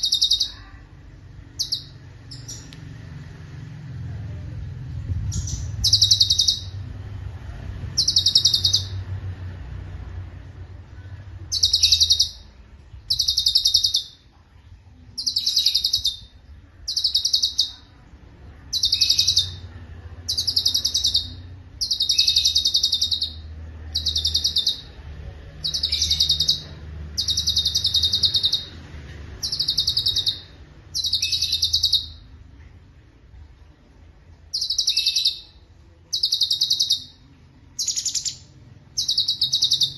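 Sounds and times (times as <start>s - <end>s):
bird singing high trills: 0.0s - 0.6s, 1.6s - 2.7s, 5.3s - 6.8s, 8.0s - 9.0s, 11.5s - 12.5s, 13.1s - 14.2s, 15.2s - 16.3s, 16.9s - 17.9s, 18.7s - 19.6s, 20.3s - 25.0s, 25.6s - 28.8s, 29.4s - 32.3s, 34.5s - 37.2s, 37.8s - 39.9s
faint low hum: 0.0s - 39.9s.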